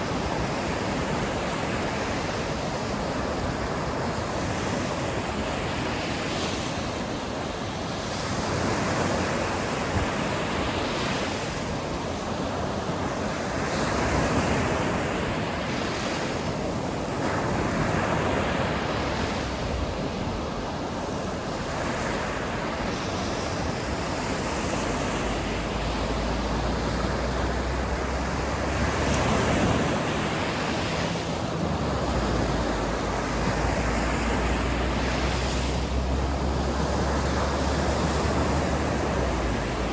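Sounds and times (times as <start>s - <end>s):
sea waves breaking on shore: 0.0s - 39.9s
wind rumble on microphone: 0.0s - 39.9s.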